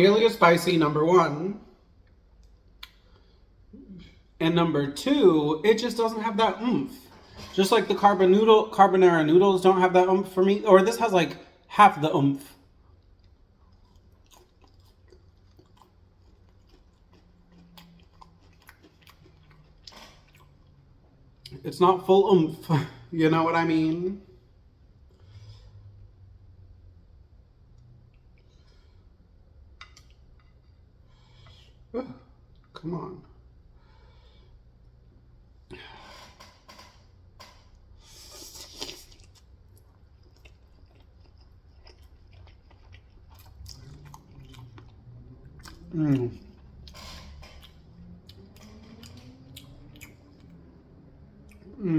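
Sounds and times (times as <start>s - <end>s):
low steady hum: 0.0s - 51.9s
person chewing noodles: 12.7s - 21.6s, 38.0s - 51.9s.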